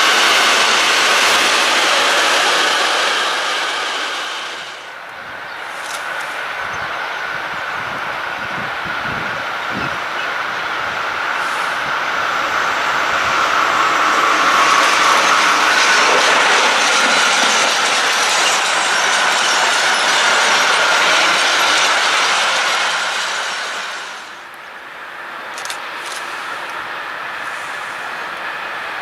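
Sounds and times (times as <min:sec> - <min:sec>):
train wheels rushing on rails: 0:00.0 - 0:29.0
ringing wheel squeal: 0:13.6 - 0:24.0.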